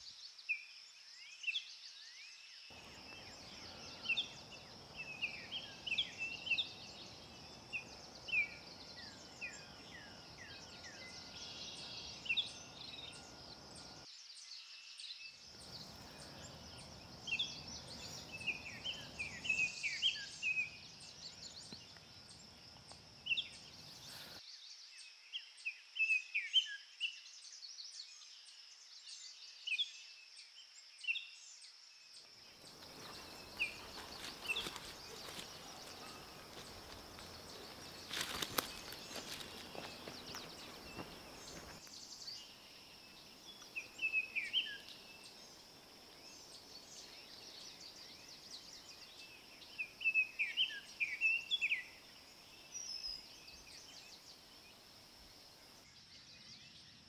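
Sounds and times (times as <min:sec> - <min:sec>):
birds chirping: 0:02.7 - 0:14.0, 0:15.6 - 0:24.4, 0:32.4 - 0:55.8.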